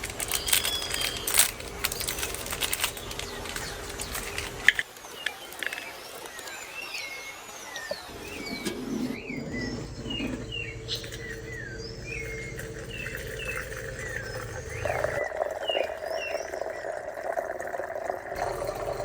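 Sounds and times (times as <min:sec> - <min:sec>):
birds chirping: 0:00.0 - 0:19.0
steady low hum: 0:08.0 - 0:15.4.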